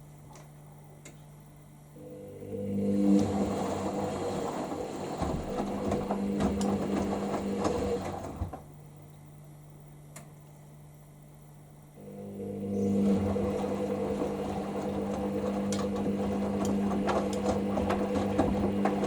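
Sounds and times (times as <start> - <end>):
washing machine drum tumbling: 2.9 - 8.8, 12.5 - 19.0
laundry and water sloshing: 3.0 - 8.6, 12.8 - 19.0.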